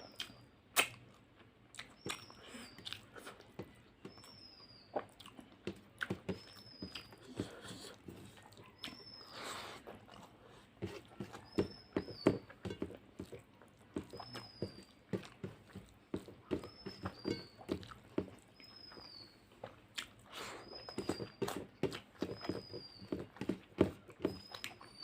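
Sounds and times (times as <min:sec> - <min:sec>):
chewing and lip-smacking: 0:00.0 - 0:11.5, 0:12.9 - 0:22.9, 0:23.6 - 0:25.0
soft breaths: 0:02.3 - 0:03.8, 0:07.0 - 0:11.4, 0:20.2 - 0:20.9.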